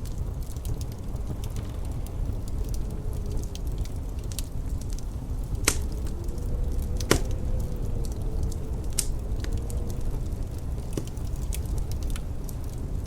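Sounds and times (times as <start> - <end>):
fire popping: 0.0 - 13.0
steady low rumble: 0.0 - 13.0
wood fire crackling: 0.0 - 13.0.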